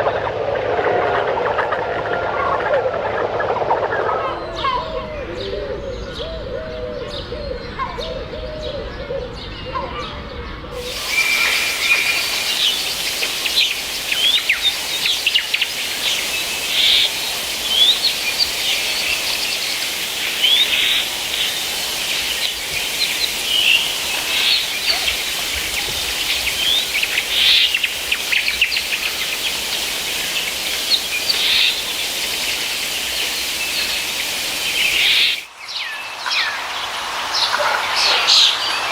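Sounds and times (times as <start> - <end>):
low wavering animal calls: 0.0 - 10.0
birds chirping and whistling: 10.8 - 36.5
background hiss: 10.8 - 38.9.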